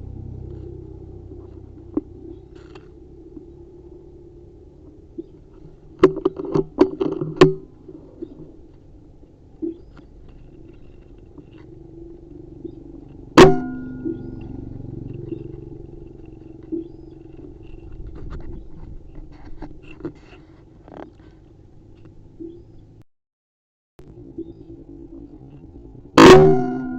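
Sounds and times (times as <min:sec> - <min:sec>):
brief metallic ring: 0:13.4 - 0:14.5, 0:26.2 - 0:26.9.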